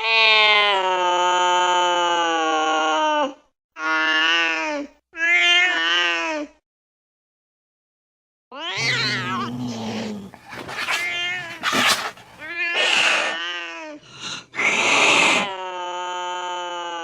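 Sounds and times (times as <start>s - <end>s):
angry cat yowling and hissing: 8.6s - 13.6s.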